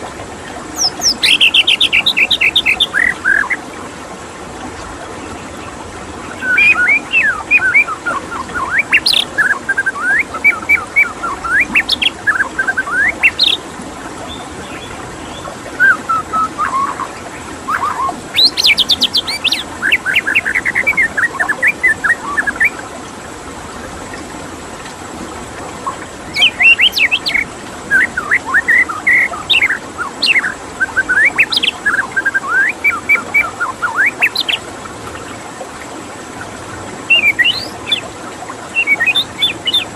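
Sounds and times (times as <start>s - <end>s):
running water hiss: 0.0s - 39.9s
bird singing whistled phrases: 0.8s - 3.6s, 6.2s - 13.6s, 14.3s - 22.8s, 26.3s - 34.6s, 37.1s - 38.0s, 38.7s - 39.9s.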